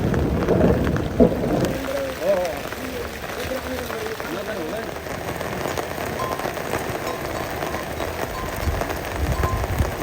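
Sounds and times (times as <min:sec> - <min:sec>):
low rumbling: 0:00.0 - 0:04.0
steady rain falling: 0:00.0 - 0:10.0.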